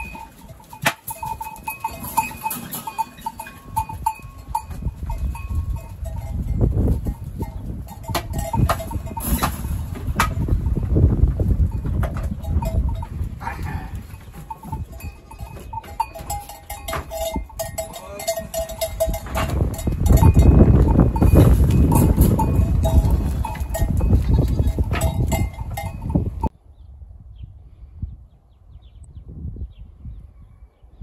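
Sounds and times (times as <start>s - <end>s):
goats calling: 0.0s - 6.3s, 11.6s - 26.0s
goat bells clanking: 0.0s - 26.5s
heavy low rumble: 18.7s - 26.5s.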